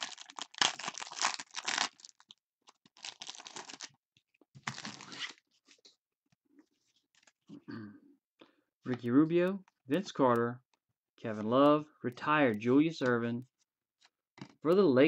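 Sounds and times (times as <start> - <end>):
wrapper tearing and crinkling: 0.0 - 2.4, 3.0 - 4.0, 4.6 - 5.4.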